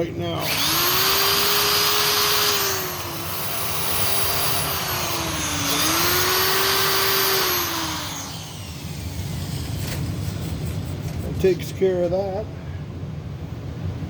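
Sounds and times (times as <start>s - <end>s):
hand grinder whining: 0.4s - 11.2s.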